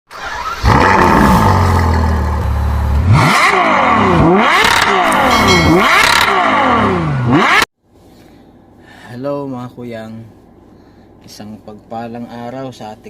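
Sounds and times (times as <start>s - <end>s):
engine revving: 0.1s - 7.7s.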